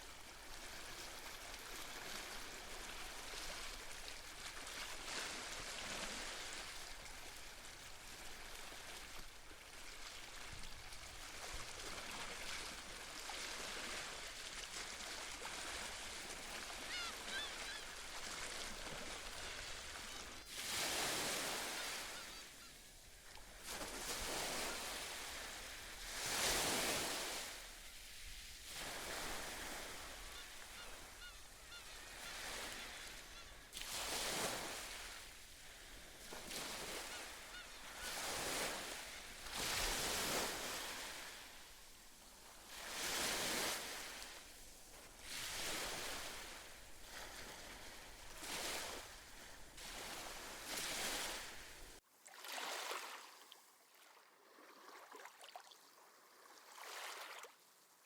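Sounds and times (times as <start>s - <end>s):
small sea waves washing in: 0.0s - 55.6s
seabirds calling: 16.6s - 20.5s, 21.1s - 22.8s, 29.7s - 33.7s, 36.6s - 38.6s.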